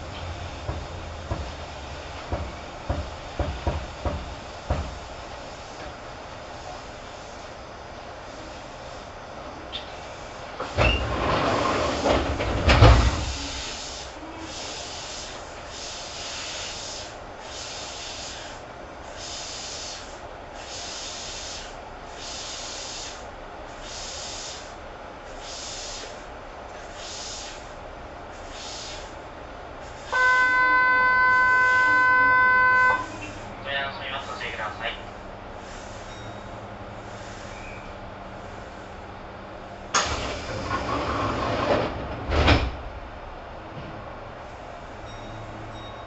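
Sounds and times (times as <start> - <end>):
train rumble: 0.0 - 46.0
thump: 12.1 - 13.3
pulsing hiss: 12.9 - 29.2
steady buzzer tone: 30.1 - 33.2.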